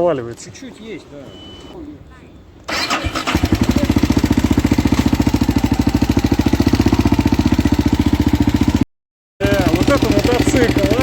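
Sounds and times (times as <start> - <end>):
motorcycle engine idling: 2.7 - 8.8, 9.4 - 11.0.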